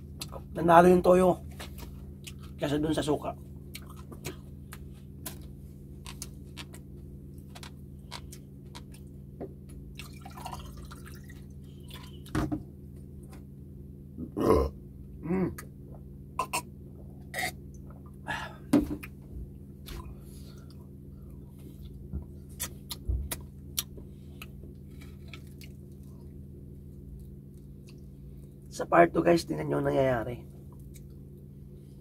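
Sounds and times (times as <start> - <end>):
faint steady hum: 0.0 - 32.0
person chewing food: 1.7 - 2.6, 3.6 - 12.3, 19.8 - 28.7.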